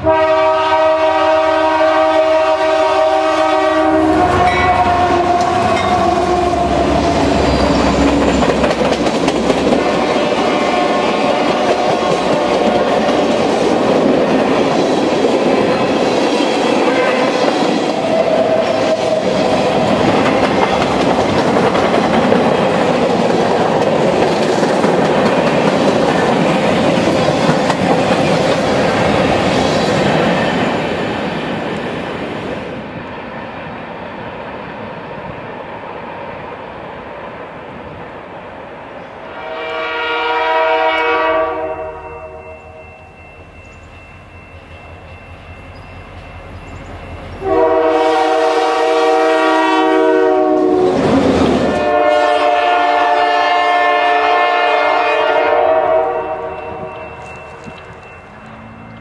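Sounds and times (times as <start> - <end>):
train horn chord: 0.0 - 8.3, 16.8 - 17.5, 39.2 - 43.3, 47.4 - 51.1, 51.7 - 57.1
diesel locomotives passing: 0.0 - 59.0.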